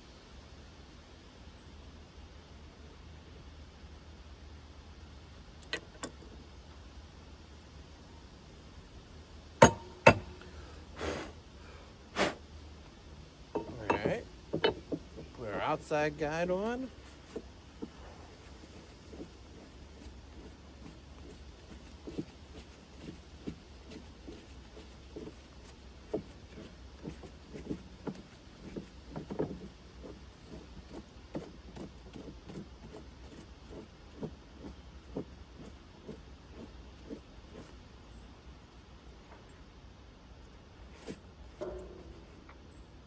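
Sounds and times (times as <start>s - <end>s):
steady low hum: 0.0s - 43.0s
light knocks and clinks on metal: 9.6s - 10.5s, 13.5s - 15.4s, 41.0s - 42.7s.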